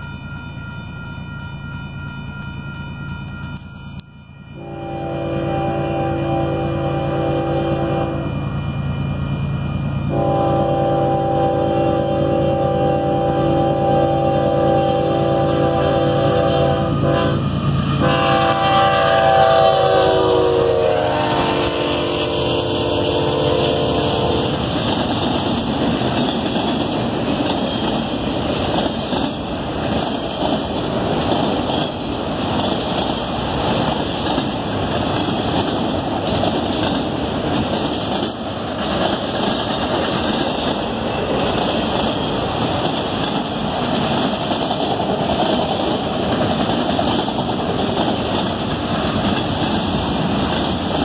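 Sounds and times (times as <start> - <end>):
locomotive air horn: 4.6 - 8.4, 10.1 - 24.7.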